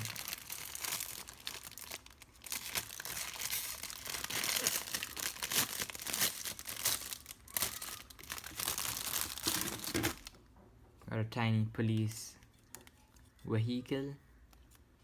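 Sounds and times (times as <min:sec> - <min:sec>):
packaging crinkling and rustling: 0:00.0 - 0:10.4
packaging tearing: 0:00.0 - 0:10.4.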